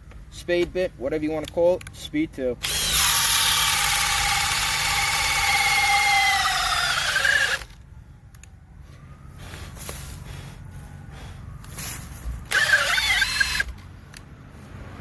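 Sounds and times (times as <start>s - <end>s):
drill motor whining: 2.6s - 7.8s, 12.4s - 13.8s.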